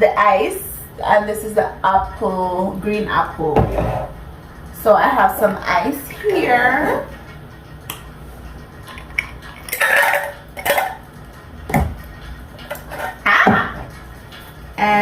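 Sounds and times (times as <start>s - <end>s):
room heater humming: 0.0s - 15.0s
ice and drinkware clinking: 8.9s - 11.0s.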